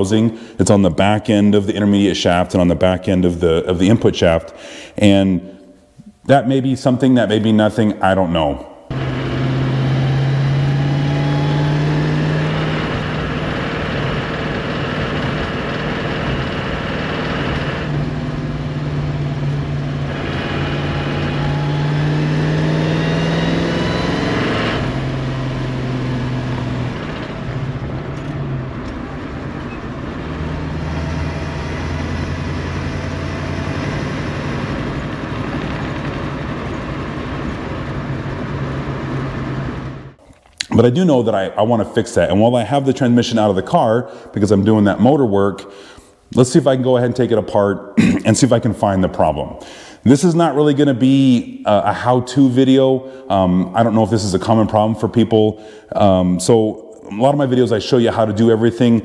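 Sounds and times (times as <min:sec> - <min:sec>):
car engine with loud exhaust: 0:08.9 - 0:40.2.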